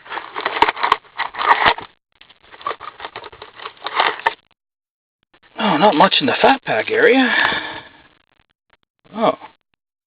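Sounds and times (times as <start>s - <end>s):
plastic and foil wrapping crinkling: 0.0s - 4.4s.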